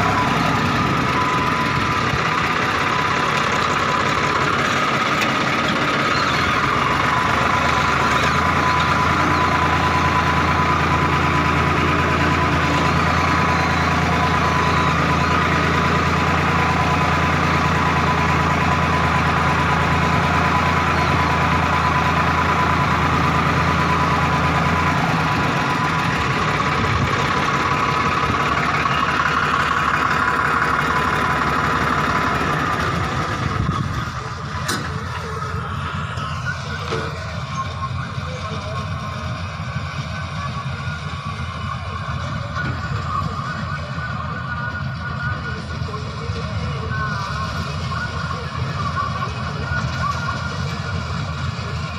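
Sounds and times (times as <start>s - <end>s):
high machinery whine: 0.0s - 51.9s
loud diesel drone: 0.0s - 51.9s.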